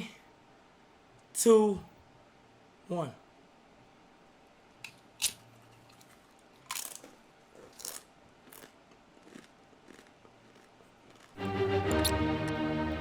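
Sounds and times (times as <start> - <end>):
people crunching spicy chips: 6.0 - 12.6.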